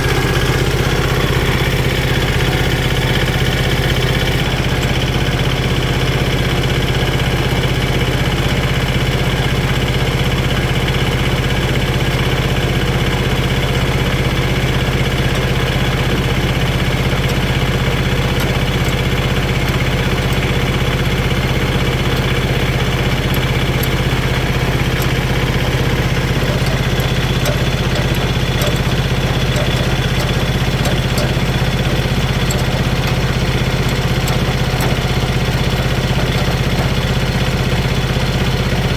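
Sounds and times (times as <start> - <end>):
engine idling with low hum: 0.0 - 38.9
faint light clicks: 22.1 - 33.3.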